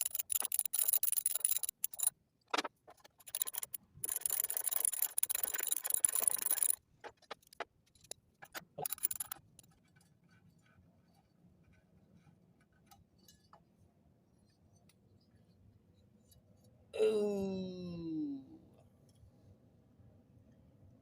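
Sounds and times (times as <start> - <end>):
ratchet wrench clicking: 0.0 - 6.8, 7.4 - 9.6
metal clicks and clinks: 0.0 - 9.8.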